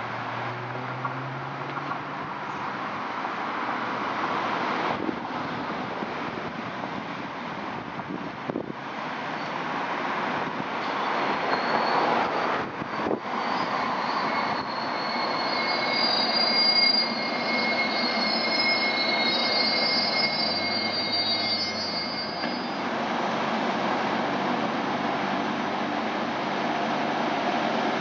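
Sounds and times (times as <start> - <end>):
train wheels rumbling on rails: 3.2 - 28.0
high-pitched multi-tone squeal: 10.8 - 23.0.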